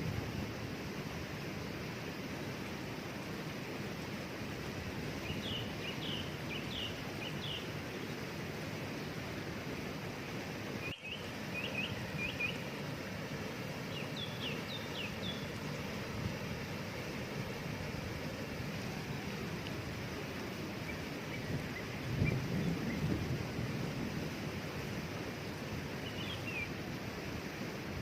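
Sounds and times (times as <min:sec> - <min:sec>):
waterfall rushing: 0:00.0 - 0:28.0
small bird chirping: 0:10.8 - 0:12.8, 0:13.9 - 0:15.6, 0:26.0 - 0:26.7.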